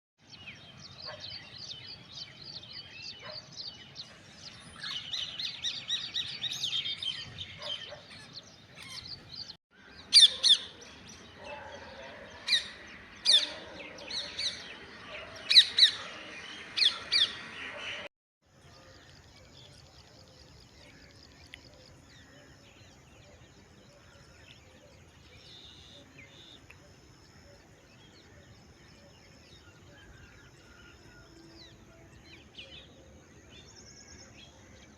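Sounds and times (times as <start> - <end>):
birds chirping: 0.2 - 18.1
loud sharp bird calls: 4.8 - 18.1.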